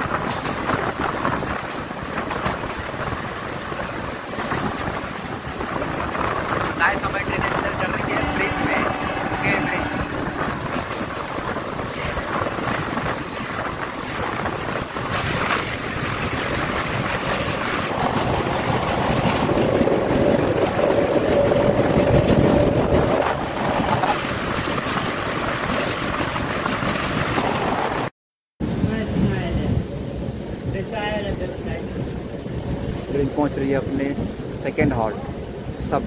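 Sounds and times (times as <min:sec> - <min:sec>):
train wheels roaring on rails: 0:00.0 - 0:36.0
wind rushing past: 0:03.1 - 0:28.9
sustained tone: 0:07.4 - 0:11.2.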